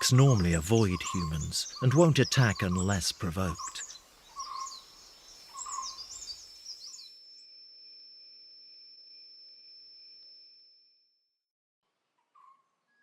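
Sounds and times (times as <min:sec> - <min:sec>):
small birds chirping: 0:00.0 - 0:07.2
high-pitched insect whine: 0:04.0 - 0:11.0.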